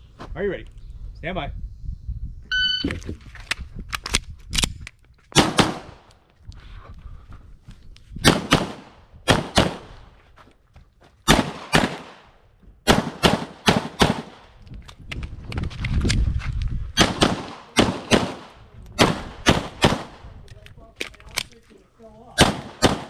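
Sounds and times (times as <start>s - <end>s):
pistol shots: 5.4s - 6.0s, 8.2s - 10.0s, 11.3s - 14.5s, 17.0s - 20.2s, 22.4s - 23.0s.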